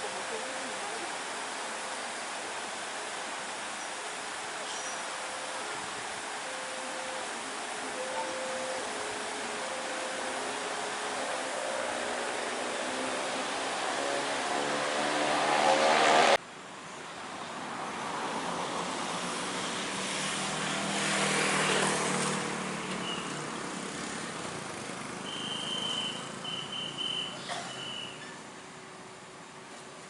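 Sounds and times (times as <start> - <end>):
diesel train engine drone: 0.0 - 30.0
train passing rush: 5.2 - 16.4.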